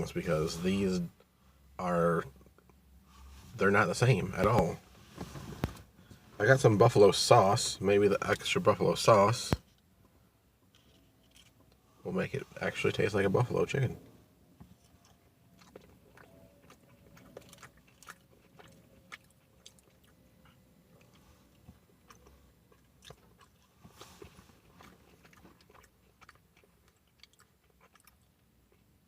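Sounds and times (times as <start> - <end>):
person biting and chewing: 14.8 - 28.3.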